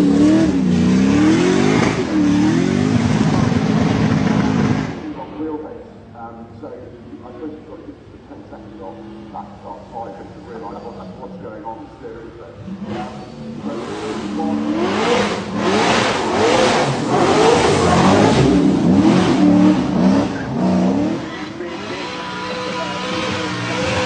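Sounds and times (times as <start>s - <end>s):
car engine revving hard: 0.0s - 5.1s, 12.6s - 24.0s.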